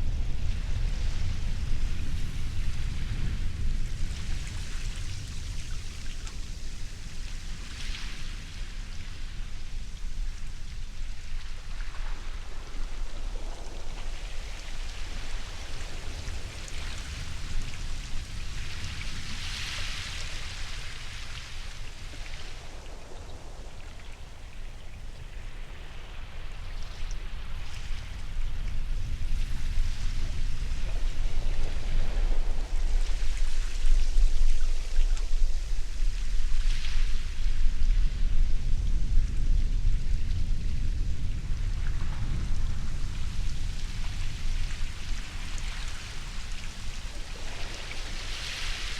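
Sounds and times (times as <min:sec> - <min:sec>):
low surf rumble: 0:00.0 - 0:07.7, 0:08.3 - 0:48.9
waves breaking: 0:11.3 - 0:38.3, 0:41.4 - 0:48.9.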